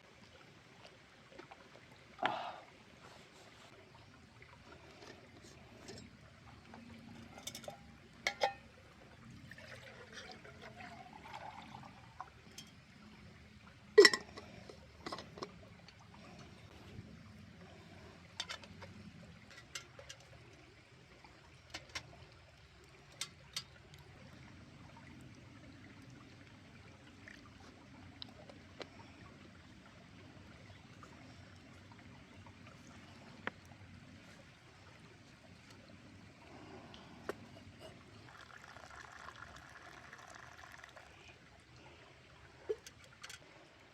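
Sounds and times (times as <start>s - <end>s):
water trickling: 0.1s - 43.9s
liquid pouring into a cup: 6.8s - 12.9s, 37.3s - 41.4s.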